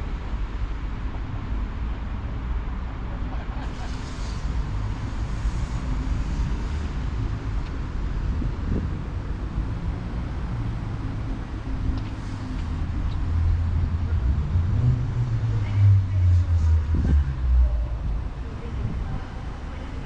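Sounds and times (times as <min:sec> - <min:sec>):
train rumble: 0:00.0 - 0:20.0.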